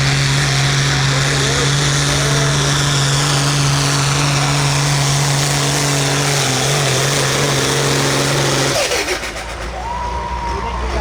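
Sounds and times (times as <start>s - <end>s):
tractor engine running loud: 0.0s - 11.0s.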